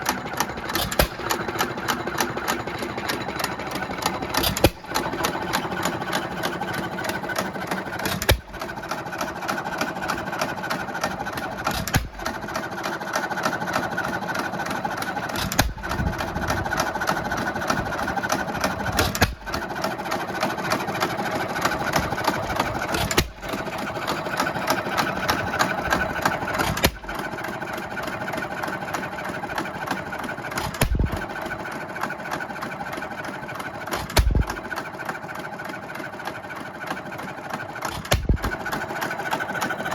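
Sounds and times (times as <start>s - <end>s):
gas engine clattering: 0.0s - 39.9s
engine firing bang: 34.0s - 34.6s.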